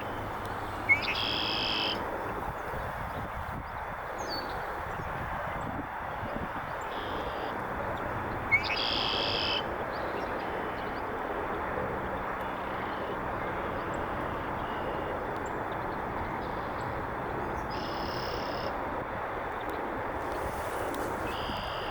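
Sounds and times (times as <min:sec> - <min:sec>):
blackbird song with buzzy trill: 0:00.9 - 0:02.0.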